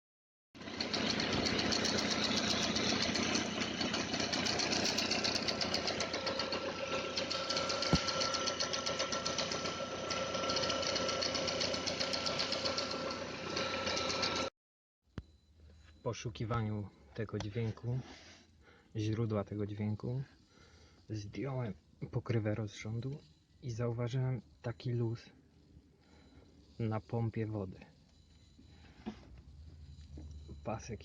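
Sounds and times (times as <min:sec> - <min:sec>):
car engine idling: 0:00.6 - 0:14.4
steady engine whine: 0:00.6 - 0:14.5, 0:28.1 - 0:31.0.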